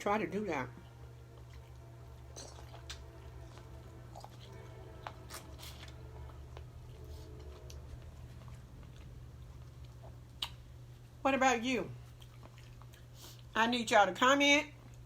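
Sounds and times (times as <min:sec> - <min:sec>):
steady low hum: 0:00.0 - 0:15.0
person chewing food: 0:01.1 - 0:11.2, 0:12.0 - 0:13.5.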